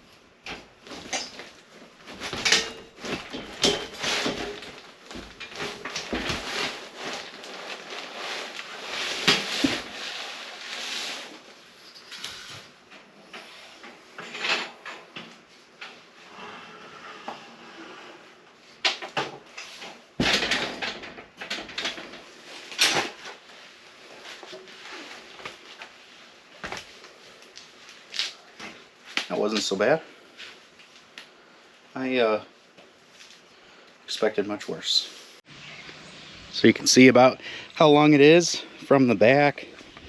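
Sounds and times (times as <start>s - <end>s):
basket knocking and scraping: 2.1s - 10.1s.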